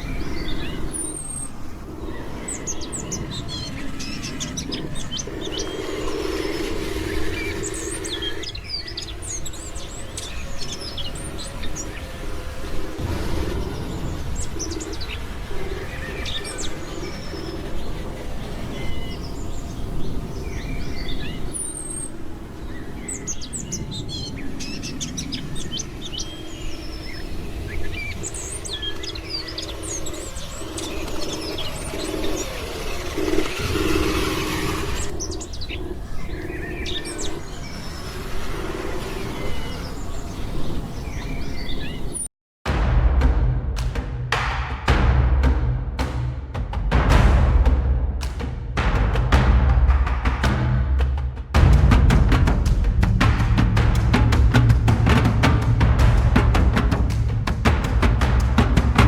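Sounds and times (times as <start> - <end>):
low rumble: 0.0 - 41.6, 42.7 - 59.0
small birds chirping: 0.0 - 42.3.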